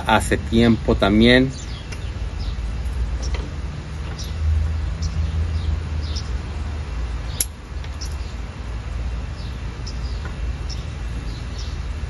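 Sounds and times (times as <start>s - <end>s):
small birds chirping: 0.0s - 12.0s
steady low rumble: 0.0s - 12.0s
sharp click: 7.4s - 8.0s.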